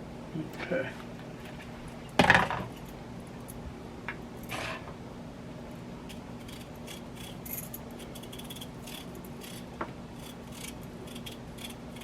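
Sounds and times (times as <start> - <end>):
low steady hum: 0.0 - 12.0
knife scraping potato peel: 6.1 - 12.0.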